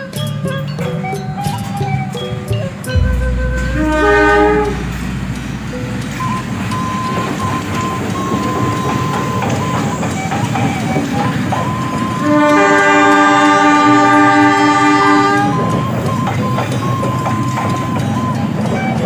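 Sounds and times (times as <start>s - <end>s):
locomotive air horn blast: 3.0s - 6.6s, 12.2s - 15.7s
train rumbling past: 3.0s - 19.0s.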